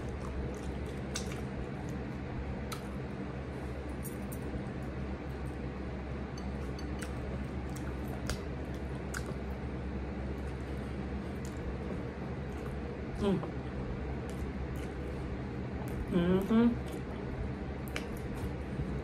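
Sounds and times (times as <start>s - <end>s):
wet squishy chewing: 0.0s - 3.2s, 6.5s - 13.1s, 16.8s - 19.0s
low hum: 0.0s - 19.0s.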